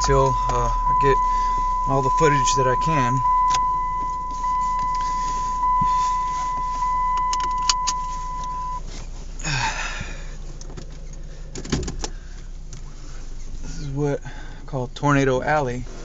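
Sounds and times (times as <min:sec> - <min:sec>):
car electronic warning tone: 0:00.0 - 0:08.8.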